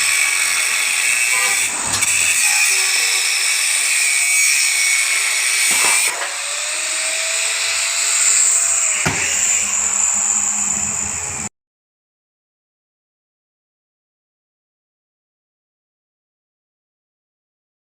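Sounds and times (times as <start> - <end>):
power saw cutting wood: 0.0 - 11.5
sharp knock: 9.0 - 9.4.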